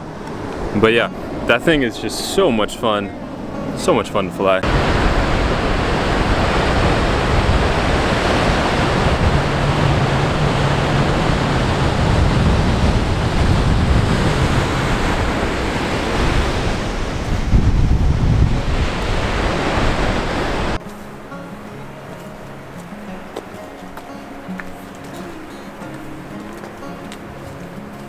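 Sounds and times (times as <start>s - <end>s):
wind rushing: 0.0s - 20.8s
ocean surf: 0.0s - 28.0s.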